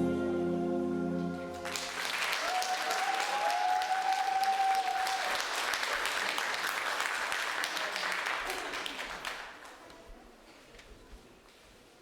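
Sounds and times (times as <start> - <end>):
held music chord: 0.0 - 1.7
audience applause: 1.5 - 9.7.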